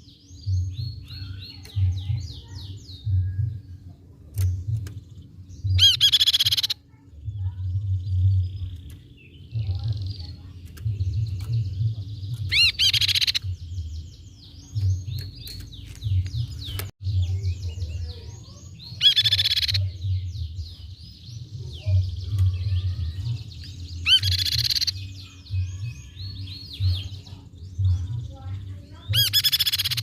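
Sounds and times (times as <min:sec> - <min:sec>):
bird sweeping chirps: 0:29.1 - 0:30.0.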